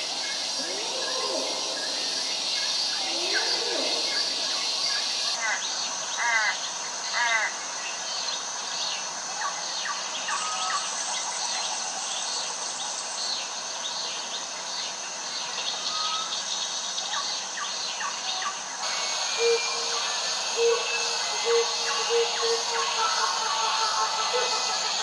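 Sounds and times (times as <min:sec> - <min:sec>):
steady high-pitched drone: 0:00.0 - 0:05.4, 0:18.8 - 0:25.0
birds chirping and whistling: 0:17.2 - 0:25.0.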